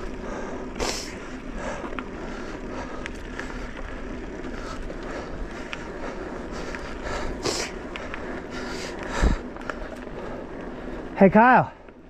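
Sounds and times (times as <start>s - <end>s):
tyre noise on dirt trail: 0.0s - 12.0s
wind rush: 6.4s - 9.9s.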